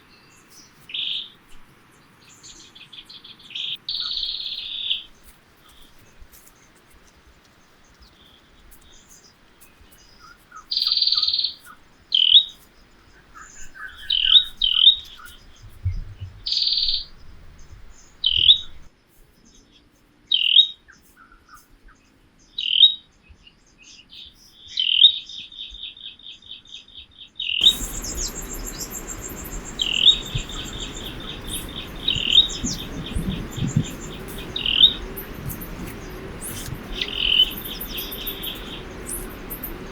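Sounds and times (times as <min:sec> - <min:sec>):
birds chirping and trilling: 0:16.4 - 0:17.1, 0:27.6 - 0:39.9
steady background hiss: 0:27.6 - 0:39.9.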